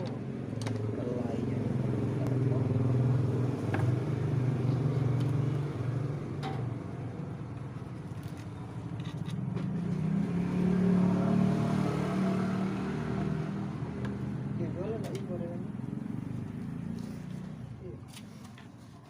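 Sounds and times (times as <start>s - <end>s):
engine running: 0.0s - 18.8s.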